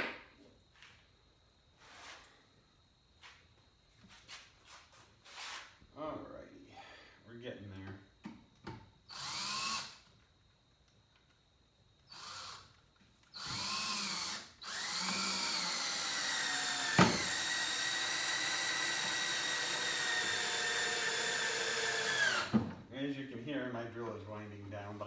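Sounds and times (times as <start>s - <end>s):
cordless drill driving screws: 9.1s - 10.1s, 12.1s - 12.7s, 13.3s - 22.6s.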